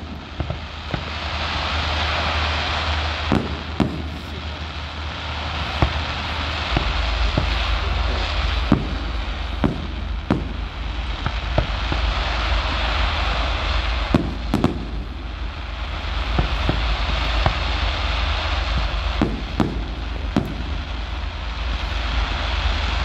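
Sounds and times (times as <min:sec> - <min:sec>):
crackling hiss: 0:00.0 - 0:23.0
fireworks exploding: 0:00.0 - 0:23.0
low rumble: 0:00.0 - 0:23.0.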